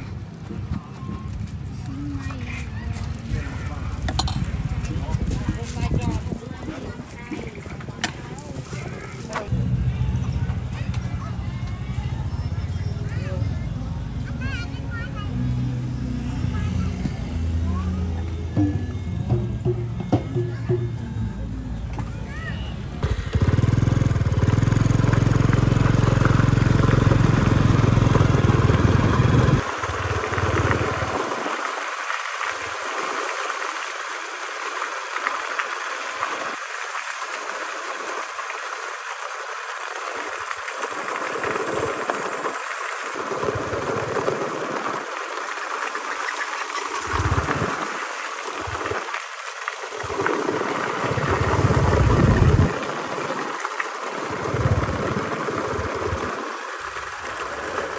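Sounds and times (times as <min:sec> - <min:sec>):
motorbike engine running: 0:00.0 - 0:06.7, 0:08.1 - 0:20.8, 0:21.6 - 0:31.4, 0:41.2 - 0:45.4, 0:46.6 - 0:48.0, 0:50.0 - 0:57.9
uneven low rumbling: 0:09.5 - 0:31.2, 0:51.0 - 0:52.9.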